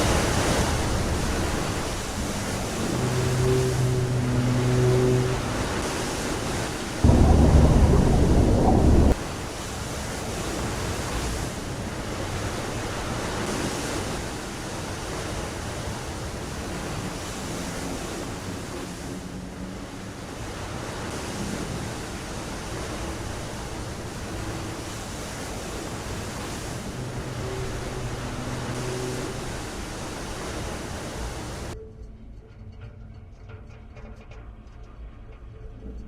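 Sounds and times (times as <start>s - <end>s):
sea rushing: 0.0s - 31.8s
wind: 0.0s - 36.0s
loud low blast: 7.0s - 9.2s.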